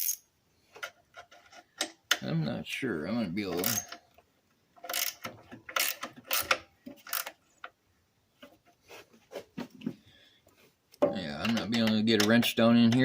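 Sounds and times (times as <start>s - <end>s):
wrench clinking on metal bolt: 3.5s - 4.0s.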